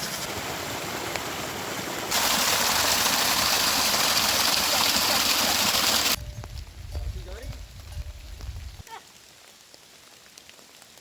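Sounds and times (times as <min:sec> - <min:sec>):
heavy rain hissing: 0:00.0 - 0:06.2.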